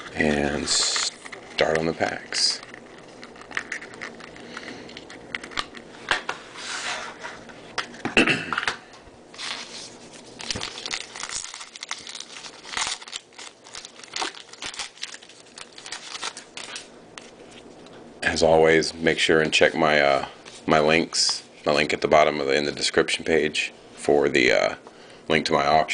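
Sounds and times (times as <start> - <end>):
card wrappers tearing and crinkling: 0.2 - 5.9, 9.4 - 17.6.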